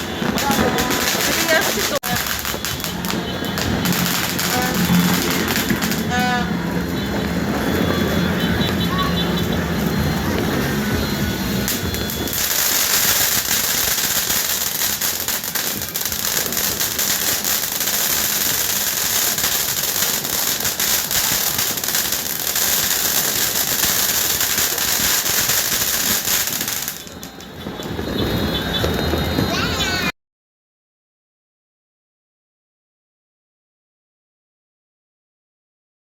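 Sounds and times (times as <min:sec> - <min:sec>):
firecrackers crackling: 0:00.0 - 0:30.1.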